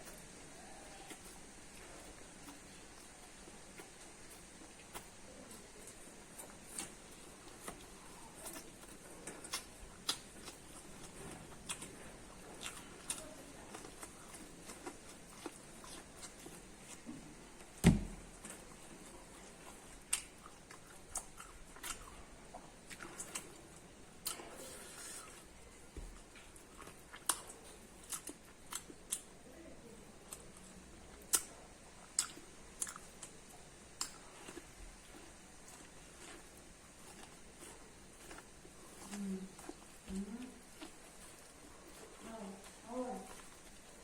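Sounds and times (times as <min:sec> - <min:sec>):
crunching corn: 0:00.0 - 0:44.0
thump: 0:17.8 - 0:18.2.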